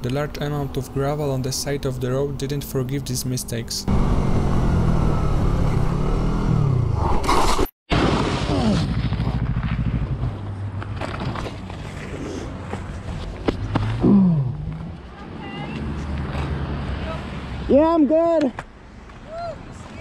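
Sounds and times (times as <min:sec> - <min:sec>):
motorcycle engine: 0:00.2 - 0:07.0, 0:08.2 - 0:12.2.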